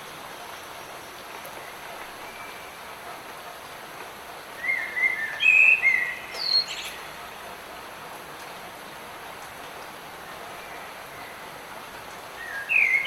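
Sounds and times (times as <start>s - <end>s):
light rain hissing: 0.0s - 13.0s
songbird whistling: 12.4s - 13.0s.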